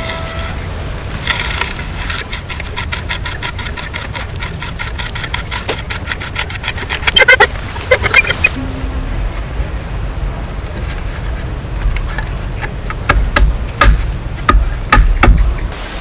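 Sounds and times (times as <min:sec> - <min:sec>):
squeaky bursts: 0:00.0 - 0:09.7
low rumble: 0:08.5 - 0:12.2
rapid sharp taps: 0:12.8 - 0:15.7.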